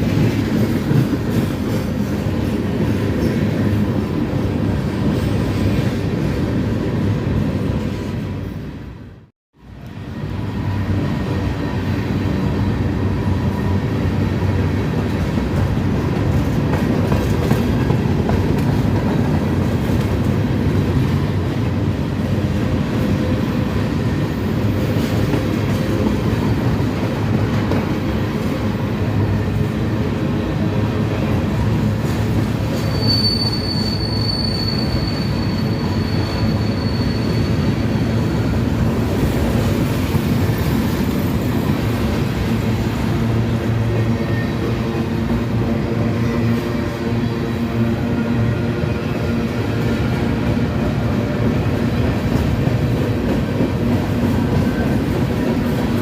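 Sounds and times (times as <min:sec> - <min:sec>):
train wheels rumbling on rails: 0:00.0 - 0:56.0
high wheel squeal: 0:32.6 - 0:38.8.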